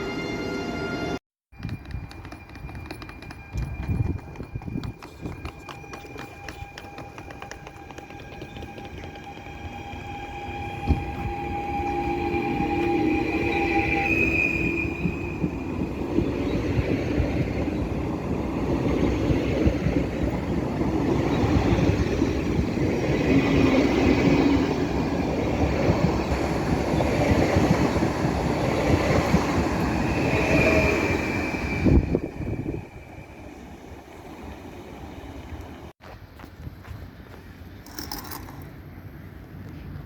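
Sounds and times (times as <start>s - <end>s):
train wheels rumbling on rails: 1.5s - 36.0s
wheel squeals: 1.6s - 16.8s.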